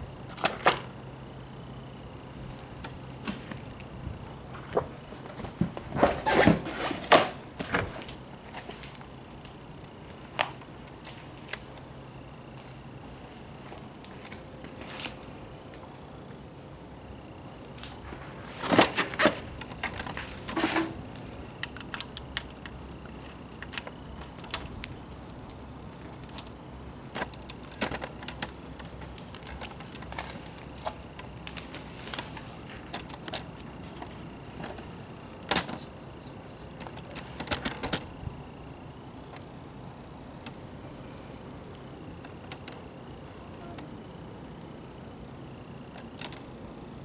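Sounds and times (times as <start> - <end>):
objects clattering: 4.5 - 8.7, 18.0 - 24.8.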